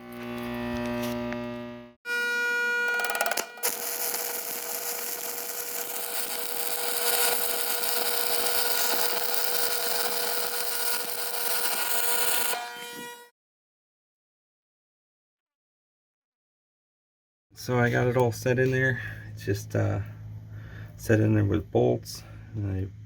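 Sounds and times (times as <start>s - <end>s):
power tool cutting steel: 0.0s - 13.3s.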